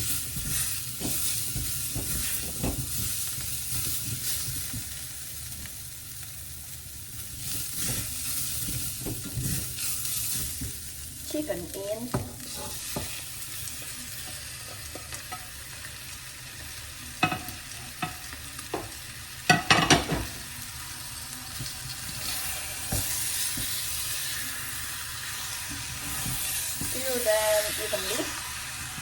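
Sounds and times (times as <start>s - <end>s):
chicken sizzling in hot oil: 0.0s - 29.0s
utensil knocking and scraping pan: 0.2s - 3.2s, 17.2s - 20.4s, 21.6s - 23.9s, 25.6s - 28.2s.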